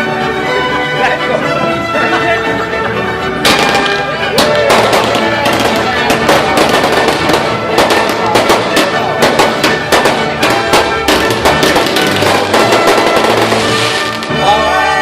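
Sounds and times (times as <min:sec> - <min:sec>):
music playing: 0:00.0 - 0:15.0
fireworks bangs and crackles: 0:03.4 - 0:14.5.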